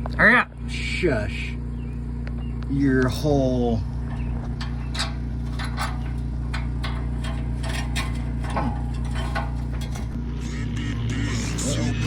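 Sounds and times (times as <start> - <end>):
steady low hum: 0.0 - 12.0
hand tools clicking and tapping: 4.5 - 10.2.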